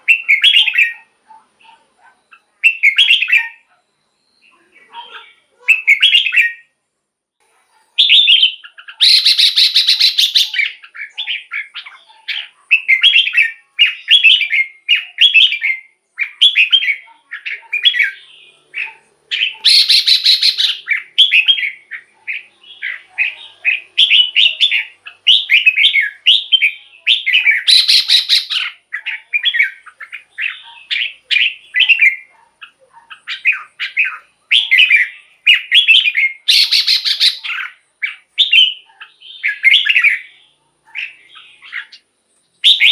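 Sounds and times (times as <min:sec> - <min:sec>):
bird whistled song: 0:00.0 - 0:01.1, 0:02.3 - 0:04.6, 0:05.7 - 0:06.7, 0:08.0 - 0:42.0, 0:42.6 - 0:42.9
harsh rattling bird chatter: 0:08.1 - 0:14.6, 0:16.1 - 0:40.2.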